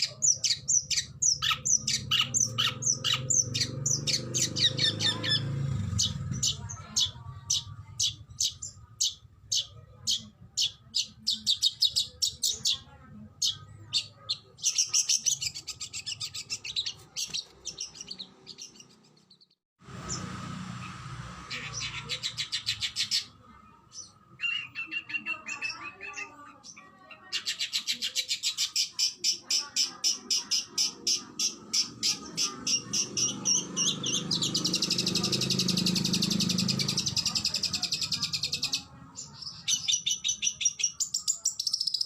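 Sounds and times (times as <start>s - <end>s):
bird warbling: 0.0s - 19.2s, 20.0s - 23.4s.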